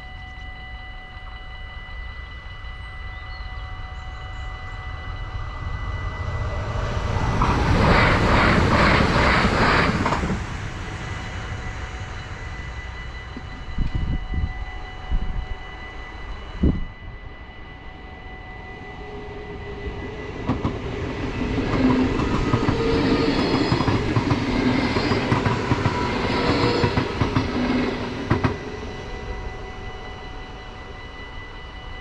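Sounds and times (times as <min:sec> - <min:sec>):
train wheels on rails: 0:05.0 - 0:17.1, 0:17.7 - 0:32.0.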